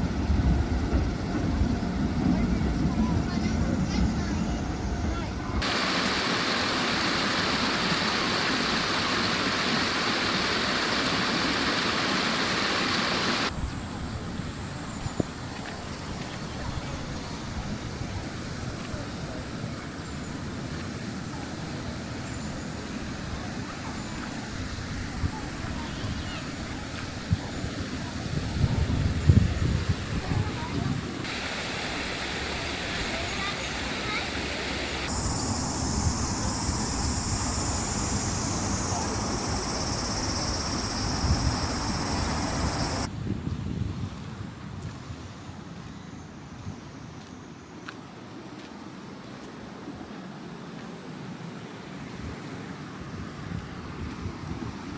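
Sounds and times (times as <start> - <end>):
cicadas droning: 1.1 - 29.1, 30.5 - 43.1
river water flowing: 5.6 - 28.3, 31.2 - 43.1
wind buffeting microphone: 23.3 - 31.3.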